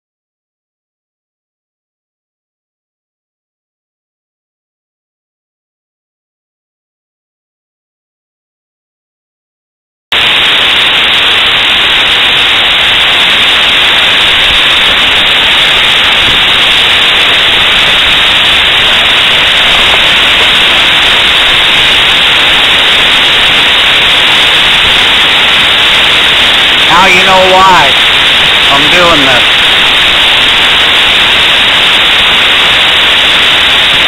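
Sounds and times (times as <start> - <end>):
waterfall rushing: 10.2 - 34.0.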